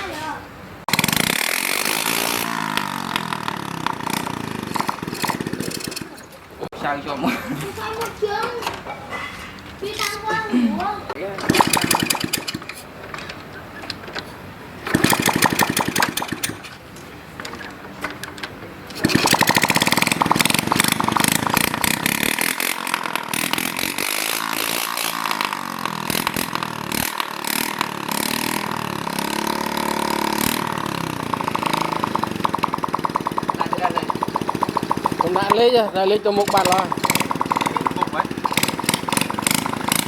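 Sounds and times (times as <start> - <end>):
small motorcycle engine starting: 0.8 - 6.7, 11.3 - 13.5, 14.7 - 18.2, 18.9 - 40.0.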